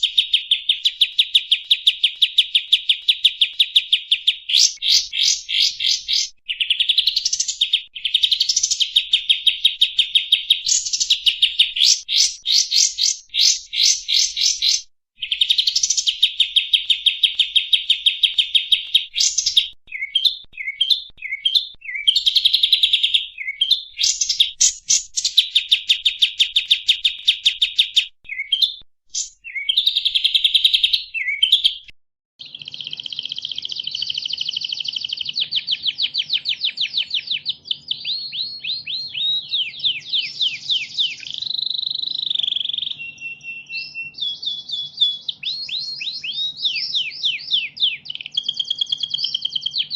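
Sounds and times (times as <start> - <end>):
songbird trills and chattering: 0.0 - 49.9
bird slurred sweeping notes: 4.5 - 6.3, 10.6 - 19.7.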